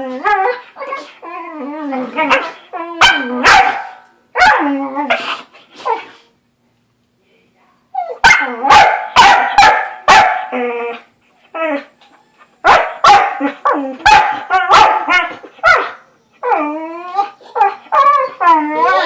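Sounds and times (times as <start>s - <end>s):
dog barking: 2.3s - 4.6s, 8.2s - 10.5s, 12.6s - 16.0s.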